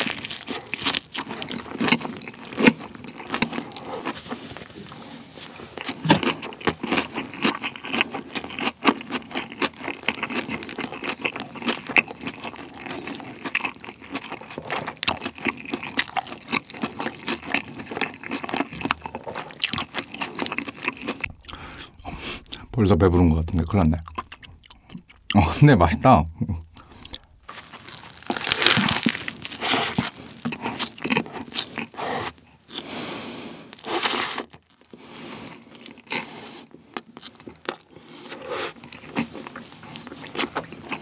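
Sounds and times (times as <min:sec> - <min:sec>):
wet chewing clicks and smacks: 0:05.8 - 0:22.7, 0:23.9 - 0:25.5.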